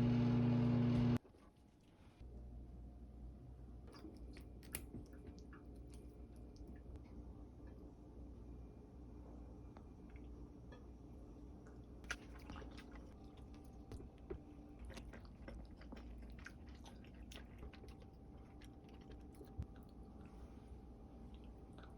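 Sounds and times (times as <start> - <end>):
low steady hum: 0.0 - 21.9
person chewing food: 3.9 - 7.0, 11.6 - 21.9.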